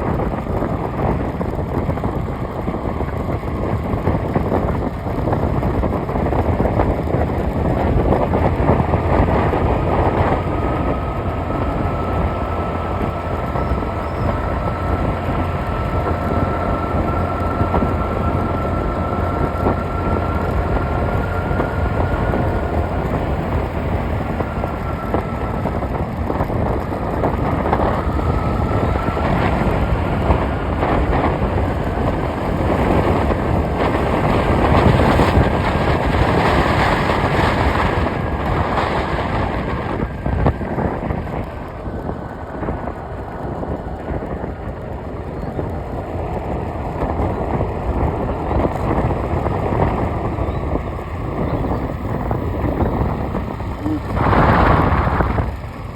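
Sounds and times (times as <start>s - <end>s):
vehicle road noise: 0.0s - 55.9s
wind on microphone: 0.0s - 55.9s.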